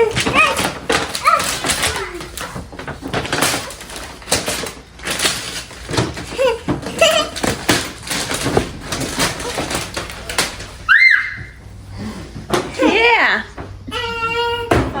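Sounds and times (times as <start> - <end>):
wrapping paper tearing: 0.0 - 11.4.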